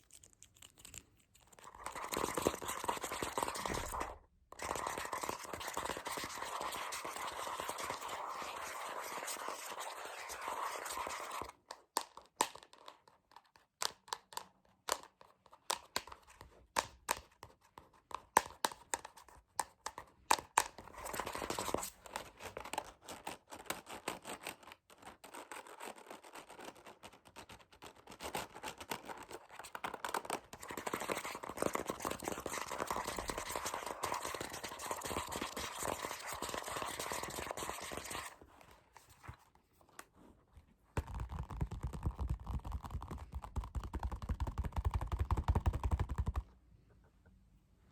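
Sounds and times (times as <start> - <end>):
fast scratching: 0.0 - 11.6, 20.9 - 24.6, 28.2 - 38.4
rapid tapping on object: 41.0 - 46.5.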